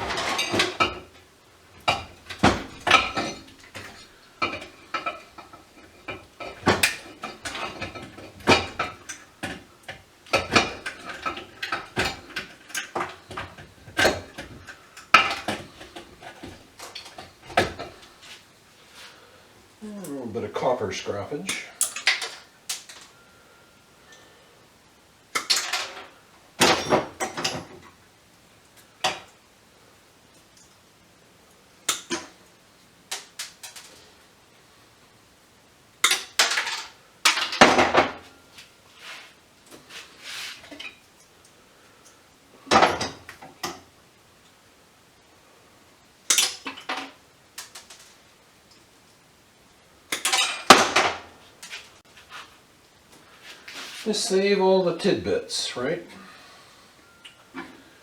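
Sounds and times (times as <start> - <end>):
metal scrap parts clinking: 0.0 - 0.9, 36.1 - 38.0.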